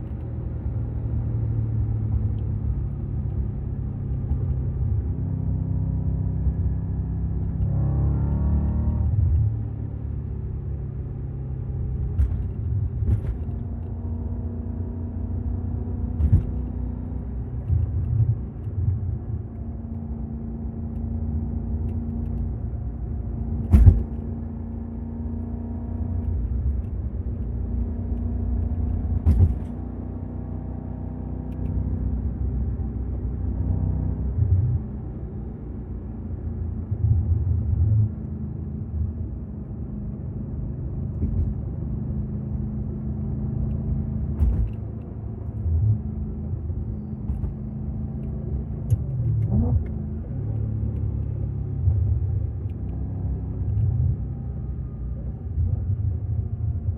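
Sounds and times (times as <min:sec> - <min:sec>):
car engine running: 0:07.4 - 0:29.9.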